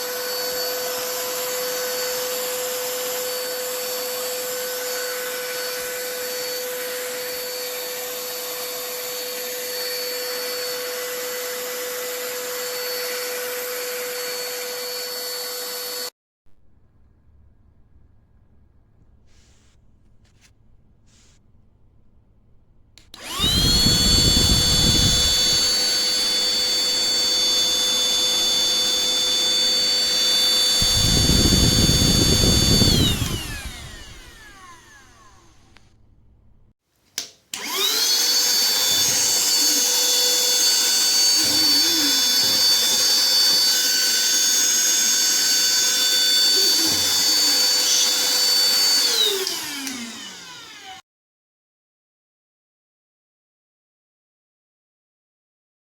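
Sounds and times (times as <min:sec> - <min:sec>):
handheld vacuum cleaner whine: 0:00.0 - 0:16.1, 0:23.0 - 0:36.0, 0:37.5 - 0:51.0
vacuum winding down: 0:23.0 - 0:36.0, 0:37.5 - 0:51.0.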